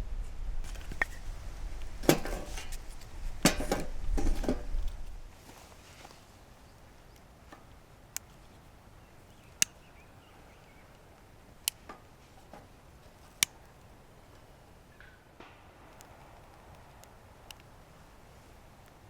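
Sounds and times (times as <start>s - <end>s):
wood fire popping and cracking: 10.8s - 19.0s.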